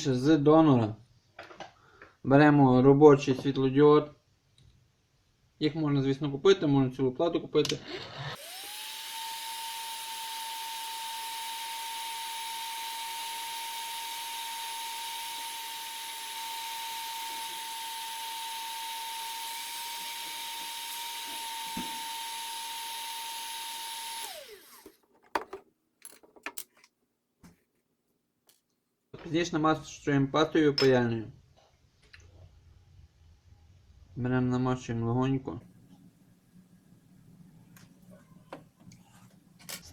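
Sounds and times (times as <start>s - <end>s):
hot-air gun fan whine: 8.4s - 25.0s.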